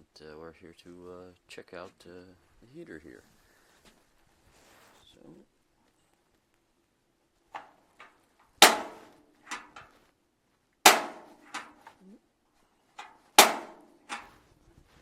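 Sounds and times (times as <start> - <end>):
piezo igniter clicks: 10.9 - 11.9.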